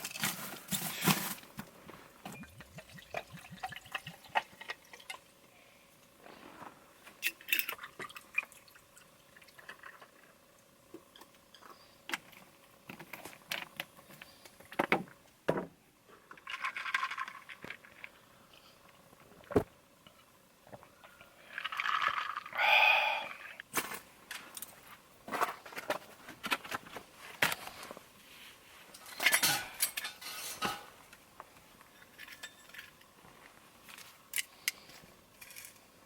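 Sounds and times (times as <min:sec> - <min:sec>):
liquid pouring: 0:02.4 - 0:05.3
cookware clinking and scraping: 0:29.0 - 0:31.0.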